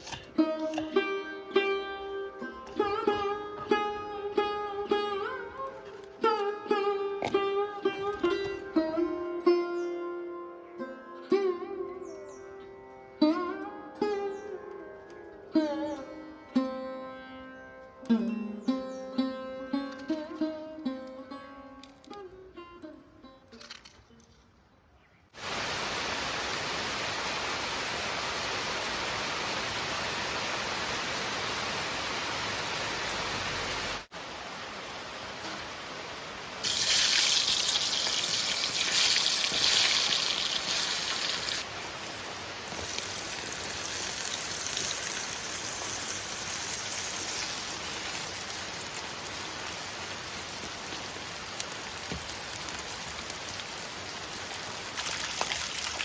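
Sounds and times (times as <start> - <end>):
loud sharp hiss: 25.4 - 52.5
steady rain falling: 25.4 - 56.0.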